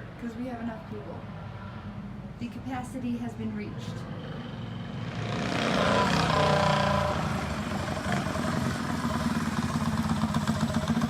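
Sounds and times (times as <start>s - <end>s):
small bike engine running: 4.3s - 11.0s.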